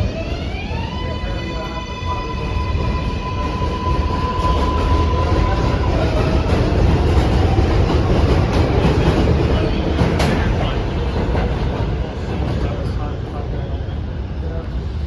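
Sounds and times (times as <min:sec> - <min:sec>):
steady high tone: 0:00.0 - 0:08.4
train rumbling on rails: 0:00.0 - 0:15.0.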